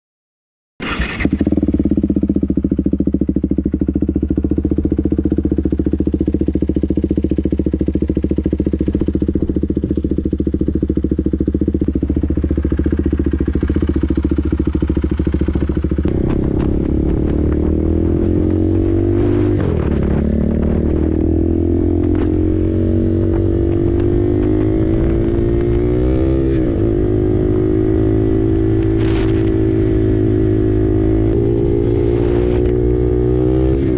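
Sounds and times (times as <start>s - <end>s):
motorcycle engine idling and revving: 0.8s - 33.9s.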